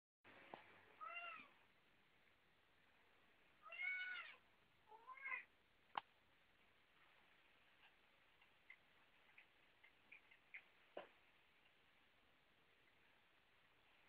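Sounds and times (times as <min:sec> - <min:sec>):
cat meowing: 0:01.0 - 0:01.5, 0:03.6 - 0:05.5.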